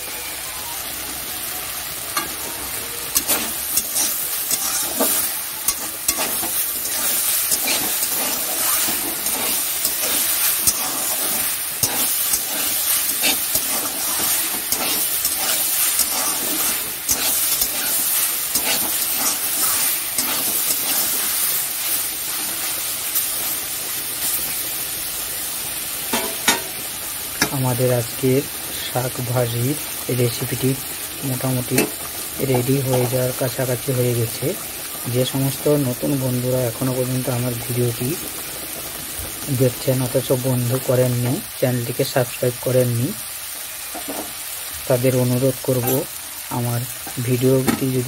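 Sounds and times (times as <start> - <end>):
vegetables sizzling in oil: 0.0 - 48.0
spatula scraping a wok: 3.1 - 23.6.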